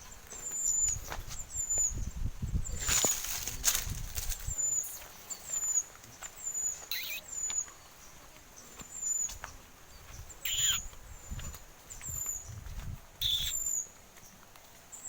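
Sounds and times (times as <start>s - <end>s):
high bird chirps: 0.4s - 3.4s, 4.3s - 8.3s, 8.9s - 12.6s, 13.2s - 13.9s.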